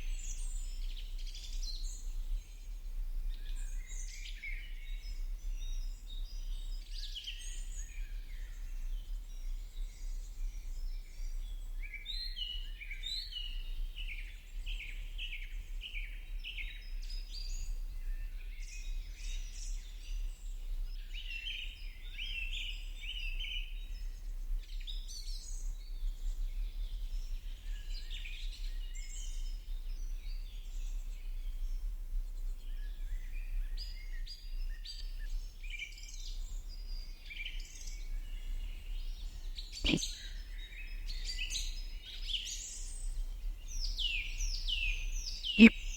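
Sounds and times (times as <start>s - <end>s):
birds chirping: 45.4s - 45.9s.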